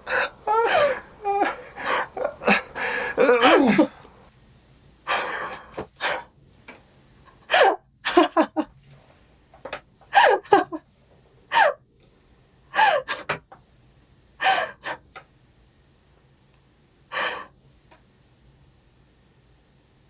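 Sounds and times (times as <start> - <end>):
person sobbing: 0.0 - 4.1, 10.2 - 10.8.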